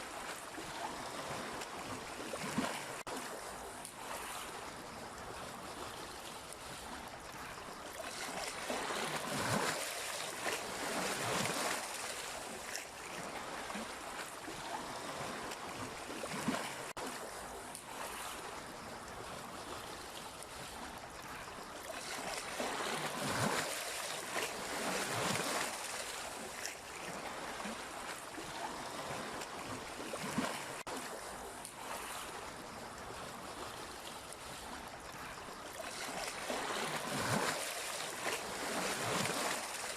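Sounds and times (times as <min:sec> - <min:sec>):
waves splashing: 0:00.0 - 0:39.9.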